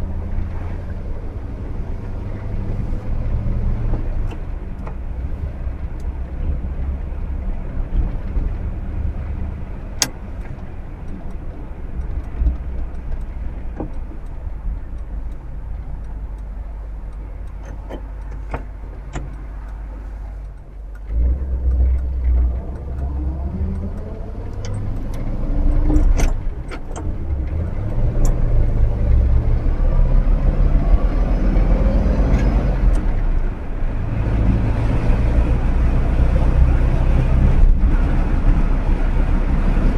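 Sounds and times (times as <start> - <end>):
sharp clicks: 10.0 - 29.3.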